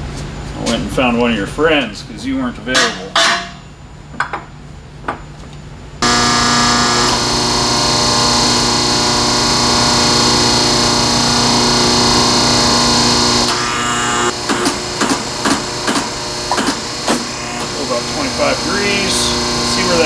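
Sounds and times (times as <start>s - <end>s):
tube bender motor humming: 6.0s - 20.0s.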